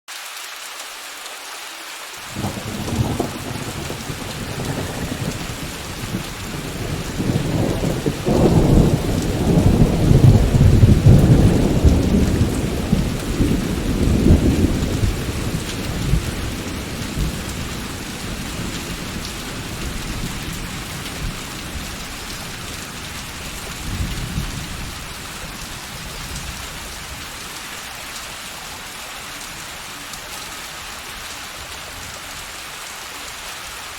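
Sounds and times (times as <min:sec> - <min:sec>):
steady rain: 0:00.1 - 0:33.9
thunder rolling: 0:02.3 - 0:25.0.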